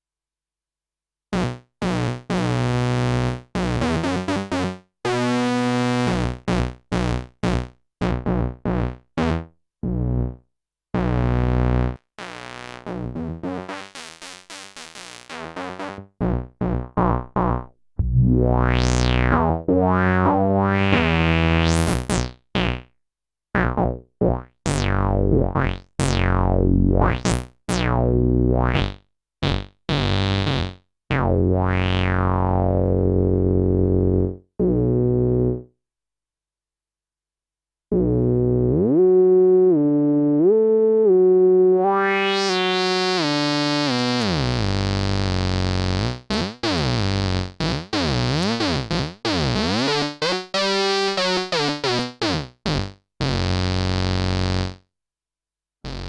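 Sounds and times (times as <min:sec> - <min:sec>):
analog synthesizer low notes: 0:15.3 - 0:22.9, 0:23.6 - 0:35.7, 0:37.9 - 0:54.8.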